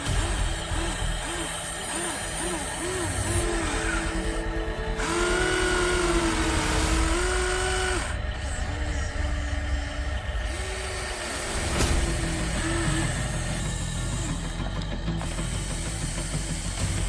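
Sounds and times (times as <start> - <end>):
small electric motors whining: 0.0 - 17.0
low rumble: 2.8 - 15.4.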